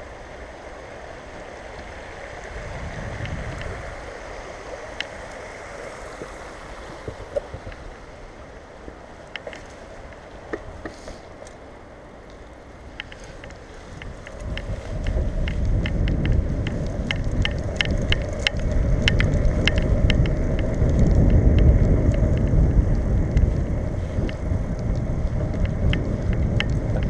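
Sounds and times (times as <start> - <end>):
light ticks and rattles: 0.0 - 7.9, 8.9 - 27.0
wind on microphone: 0.0 - 11.7, 12.3 - 27.0
bicycle road rumble: 0.0 - 27.0.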